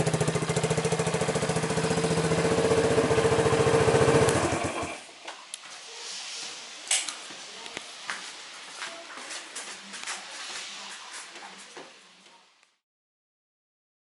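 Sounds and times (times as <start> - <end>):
motorcycle engine pulsing: 0.0 - 5.0.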